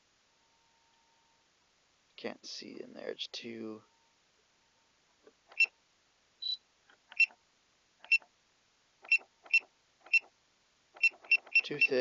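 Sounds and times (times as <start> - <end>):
sharp high clicks: 7.1 - 7.4, 9.0 - 10.3, 11.0 - 12.0.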